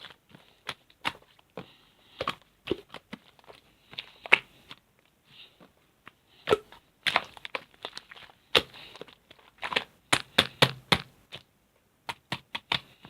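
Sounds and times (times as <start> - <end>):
slime squished by hand: 6.4 - 12.9
sticky pops and clicks: 9.6 - 13.0.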